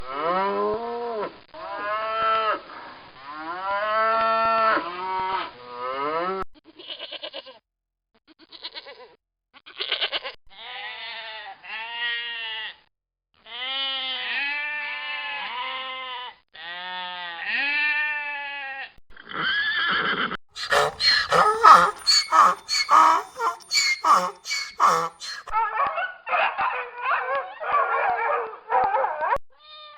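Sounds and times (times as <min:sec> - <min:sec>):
livestock bleating: 0:20.6 - 0:25.2.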